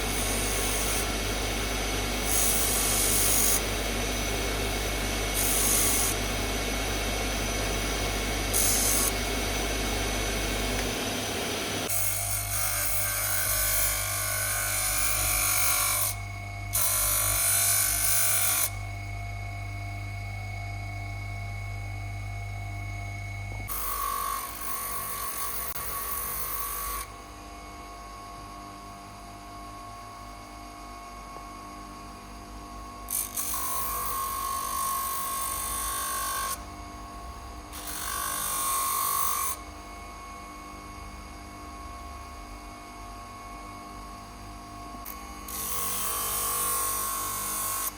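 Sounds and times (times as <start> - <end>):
handheld power tool running: 0.0 - 18.8, 23.7 - 27.1.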